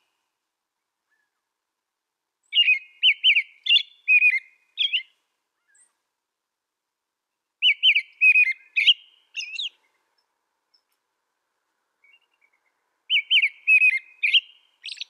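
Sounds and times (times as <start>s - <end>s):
robin singing whistled phrases: 2.4s - 5.9s, 7.6s - 10.1s, 12.0s - 15.0s.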